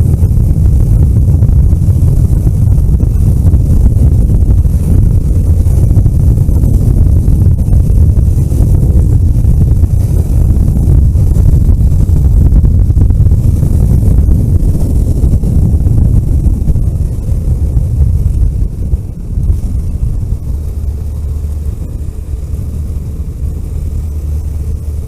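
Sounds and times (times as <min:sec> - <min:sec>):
vehicle engine and road rumble: 0:00.0 - 0:25.0
wind buffeting microphone: 0:00.0 - 0:25.0.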